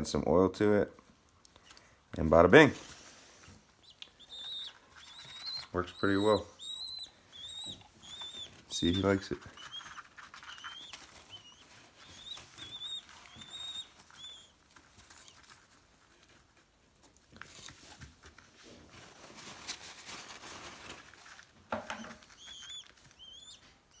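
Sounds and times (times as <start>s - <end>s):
pigeon chick peeping: 3.4s - 16.4s, 21.8s - 24.0s.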